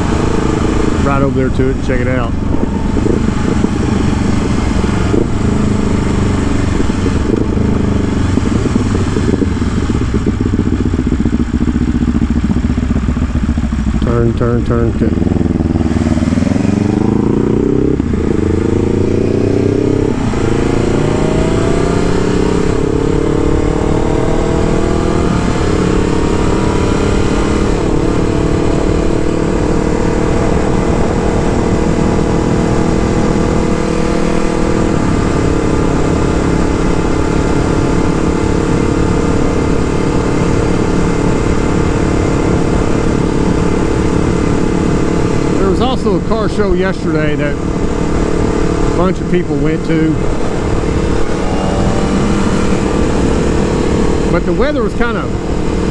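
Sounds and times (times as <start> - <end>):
motorcycle engine accelerating: 0.0 - 55.9
wind rush: 2.0 - 11.7.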